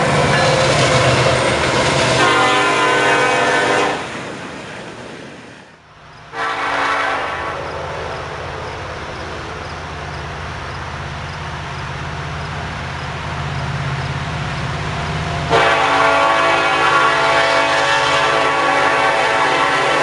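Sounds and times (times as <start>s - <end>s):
diesel locomotive running: 0.0s - 20.0s
locomotive air horn blast: 2.2s - 4.2s, 6.3s - 7.9s, 15.5s - 20.0s.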